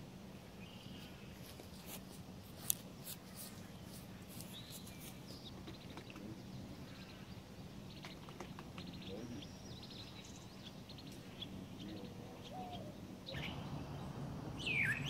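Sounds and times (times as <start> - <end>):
steady low hum: 0.0 - 15.0
faint bird chirps: 3.6 - 15.0.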